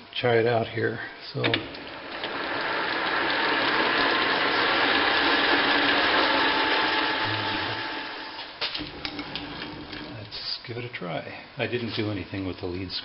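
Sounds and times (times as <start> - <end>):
lathe gears whirring and clattering: 1.5 - 10.2.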